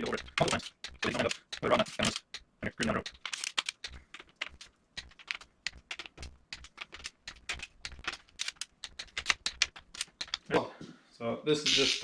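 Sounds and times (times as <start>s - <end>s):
socket ratchet clicking: 0.0s - 10.5s.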